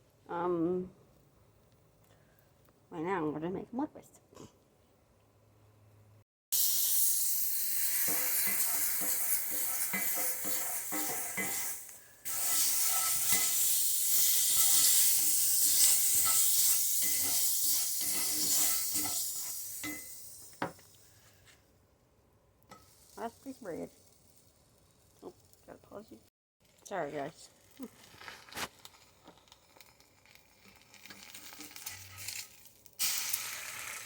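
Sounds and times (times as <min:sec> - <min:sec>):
butter sizzling in a frying pan: 0:06.6 - 0:21.2, 0:22.7 - 0:25.7, 0:26.6 - 0:34.0.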